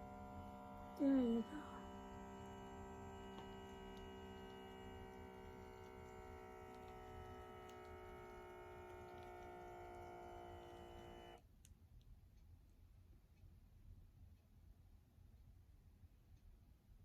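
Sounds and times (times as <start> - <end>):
small air pump buzzing: 0.0 - 11.4.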